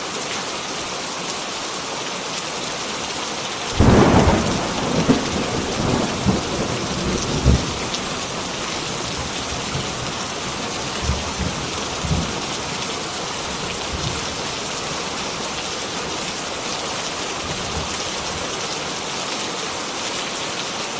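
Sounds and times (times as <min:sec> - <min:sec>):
heavy rain: 0:00.0 - 0:20.9
thunder rumbling: 0:03.8 - 0:14.5.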